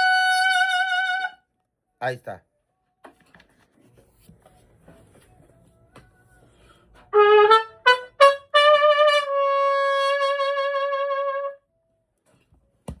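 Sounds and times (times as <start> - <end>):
trumpet playing: 0.0 - 1.4, 7.1 - 11.6.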